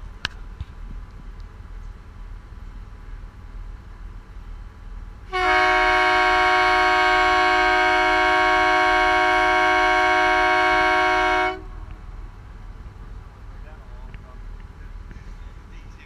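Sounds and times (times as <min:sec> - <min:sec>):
boat engines rumbling: 0:00.0 - 0:16.0
boat horn blast: 0:05.3 - 0:11.8.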